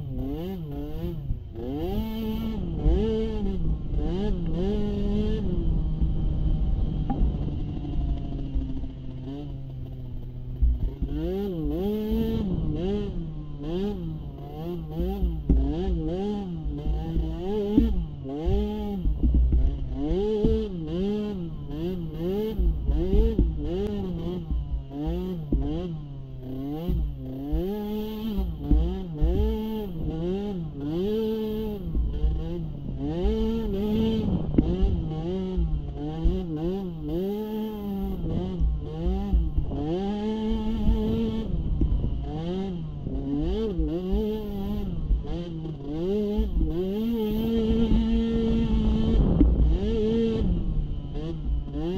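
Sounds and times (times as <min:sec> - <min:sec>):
small atv engine revving: 0:00.0 - 0:51.9.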